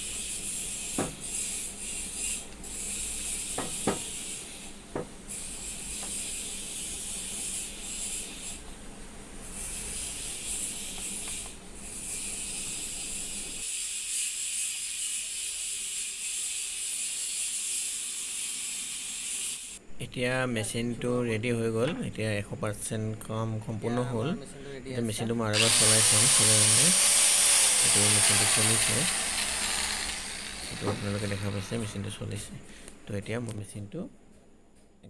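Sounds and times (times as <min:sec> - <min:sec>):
steady hiss: 0:19.6 - 0:34.9.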